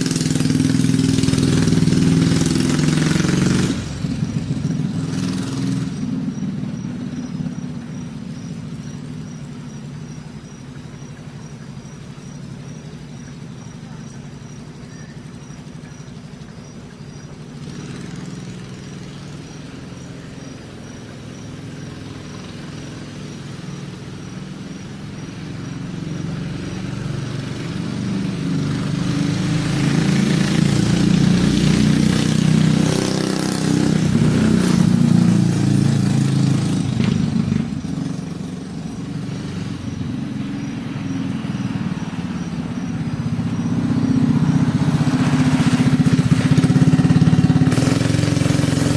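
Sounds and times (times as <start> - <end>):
mini bike engine running: 0.0 - 48.9.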